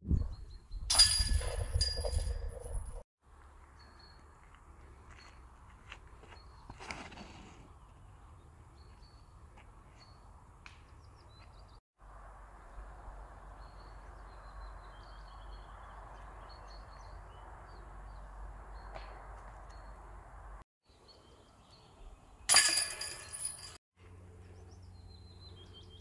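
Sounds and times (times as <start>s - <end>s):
small birds chirping: 12.6s - 20.2s, 24.5s - 26.0s.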